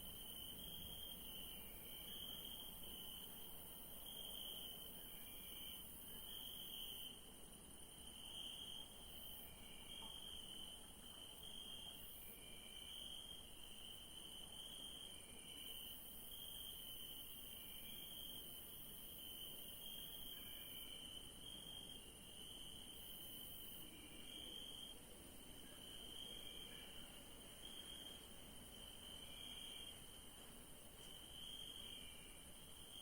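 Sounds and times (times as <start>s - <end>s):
crickets chirping: 0.0s - 33.0s
high insect hiss: 0.0s - 33.0s.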